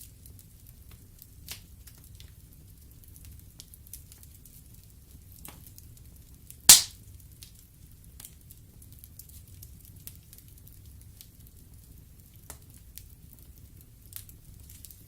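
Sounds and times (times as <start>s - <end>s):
log popping: 6.7s - 6.9s
wood fire crackling: 6.7s - 6.9s.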